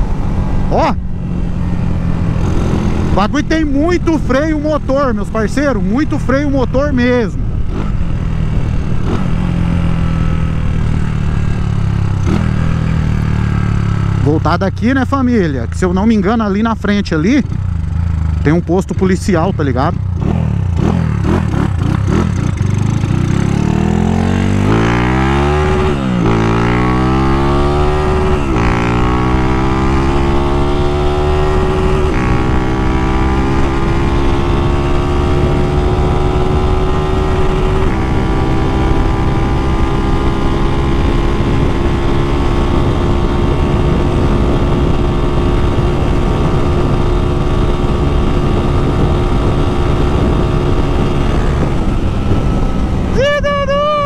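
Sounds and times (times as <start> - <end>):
motorcycle engine accelerating: 0.0 - 54.0
wind rush: 20.1 - 54.0.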